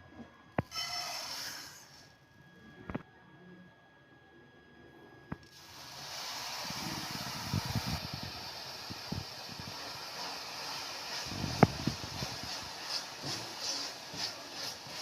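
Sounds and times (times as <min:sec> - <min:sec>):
sizzling in a hot pan: 0:08.4 - 0:15.0.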